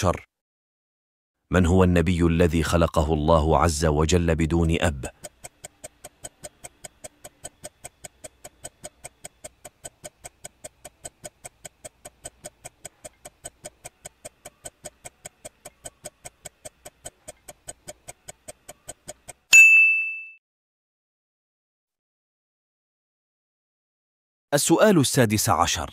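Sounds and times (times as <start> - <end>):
countdown timer ticking: 4.2 - 19.5
bright ding: 19.5 - 20.4.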